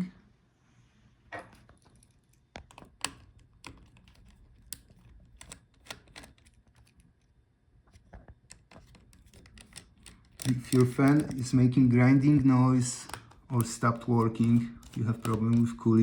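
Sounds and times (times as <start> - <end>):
screwdriver clicks and taps: 2.6 - 7.0, 8.5 - 11.5, 13.0 - 15.8.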